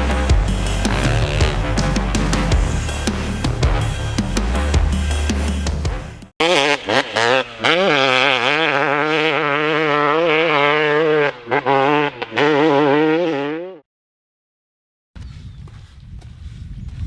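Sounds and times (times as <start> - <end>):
dirt bike engine revving: 0.0 - 13.8.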